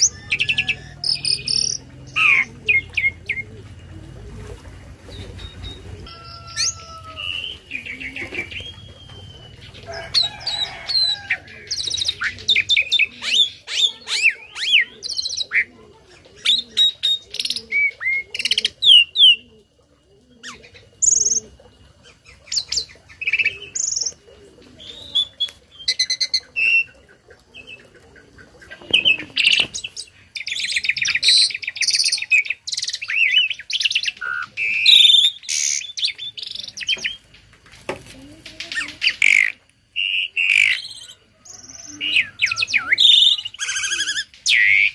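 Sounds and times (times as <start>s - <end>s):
starling singing: 0.0s - 3.7s, 5.3s - 15.7s, 38.5s - 44.9s.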